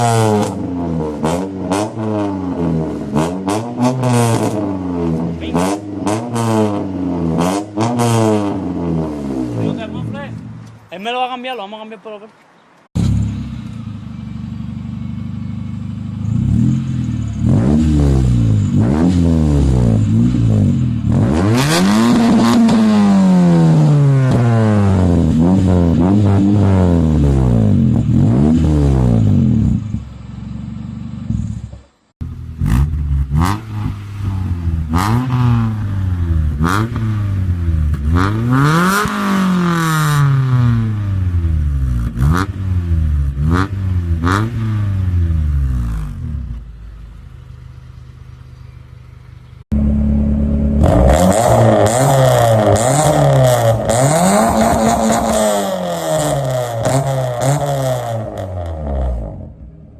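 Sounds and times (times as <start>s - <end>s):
car engine revving: 0.0s - 10.8s, 13.0s - 59.9s.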